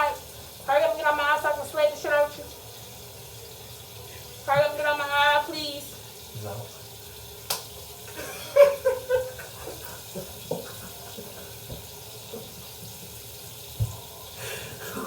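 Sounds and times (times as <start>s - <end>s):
tap water running into sink: 0.0s - 15.0s.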